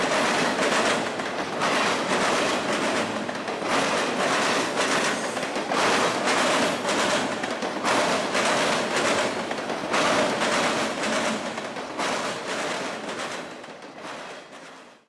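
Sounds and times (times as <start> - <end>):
freight train wheels clattering: 0.0 - 15.0.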